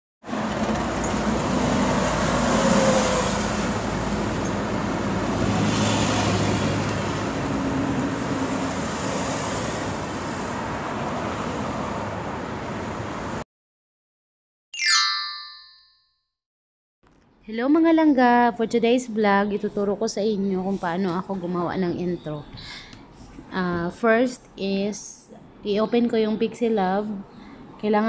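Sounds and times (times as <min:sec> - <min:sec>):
short ringing tone: 0:14.8 - 0:16.1.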